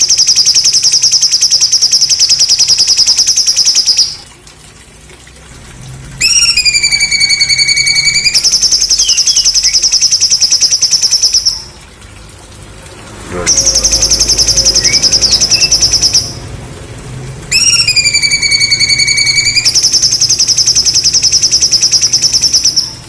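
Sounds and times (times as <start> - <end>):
songbird rapid buzzy trill: 0.0 - 4.2, 6.2 - 11.7, 13.5 - 16.5, 17.5 - 23.0.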